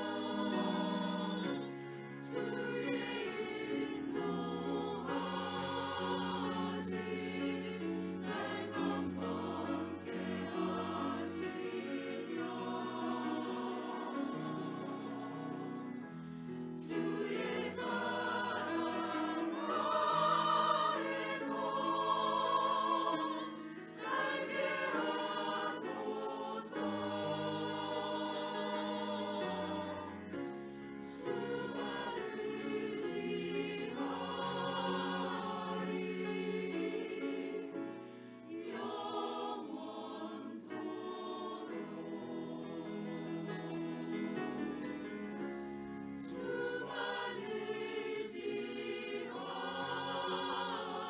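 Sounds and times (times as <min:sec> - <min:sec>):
choir singing a hymn: 0:00.0 - 0:51.0
singers breathing: 0:16.1 - 0:16.7, 0:37.9 - 0:38.6.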